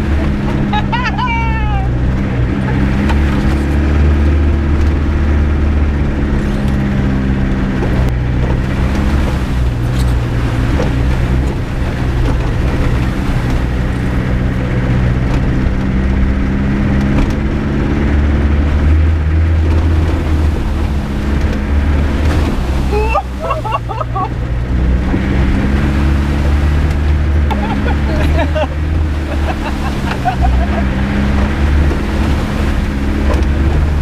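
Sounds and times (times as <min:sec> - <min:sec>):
off-road vehicle engine running: 0:00.0 - 0:34.0
sharp knocks over bumps: 0:07.7 - 0:17.8, 0:28.7 - 0:34.0.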